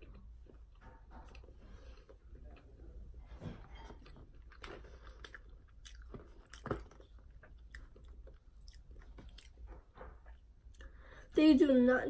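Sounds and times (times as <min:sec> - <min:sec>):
person chewing crunchy food: 0:03.7 - 0:09.9.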